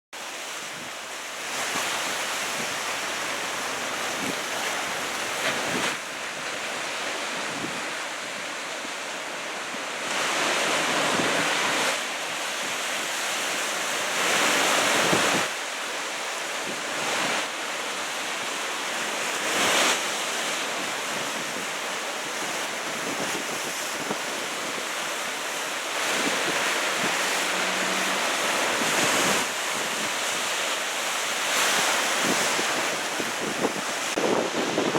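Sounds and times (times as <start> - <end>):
waves crashing: 0.2 - 34.9
wind buffeting microphone: 0.6 - 8.5, 20.8 - 30.7, 31.6 - 34.9.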